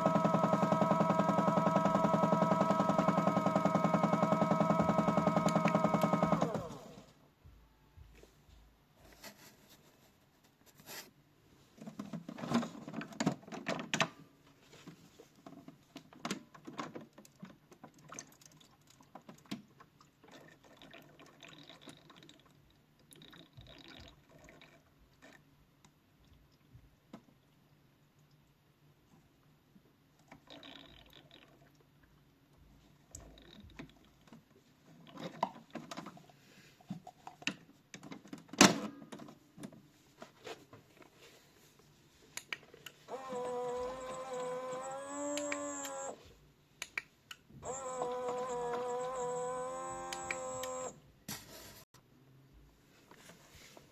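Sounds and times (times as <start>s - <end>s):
toy washing machine motor: 0.0s - 7.1s, 43.1s - 46.3s, 47.6s - 51.0s.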